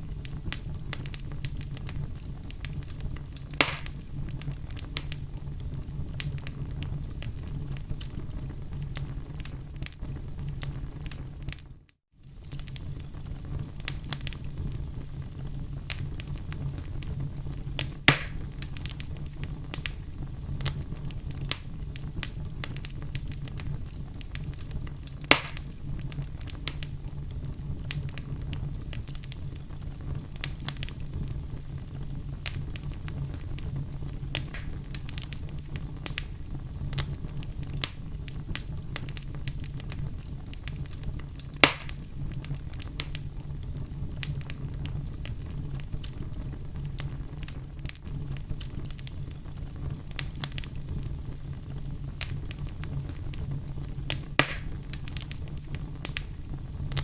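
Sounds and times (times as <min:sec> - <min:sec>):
loud fire pops: 0:00.0 - 0:57.0
wood fire crackling: 0:00.0 - 0:57.0.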